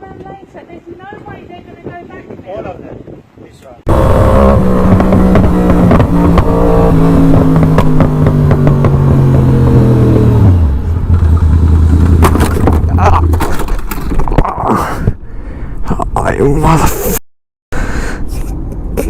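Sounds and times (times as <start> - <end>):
car engine running: 3.9 - 13.6.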